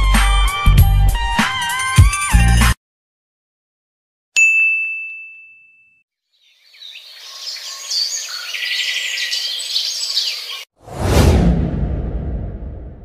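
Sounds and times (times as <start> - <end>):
bright ding: 4.4 - 6.0
birds chirping: 6.3 - 10.7.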